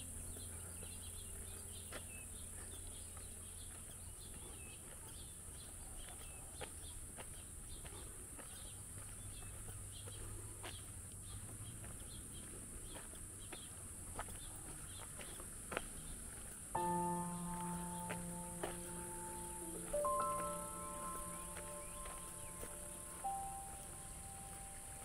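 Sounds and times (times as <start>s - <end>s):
small birds chirping: 0.0s - 25.0s
low distant hum: 13.4s - 25.0s.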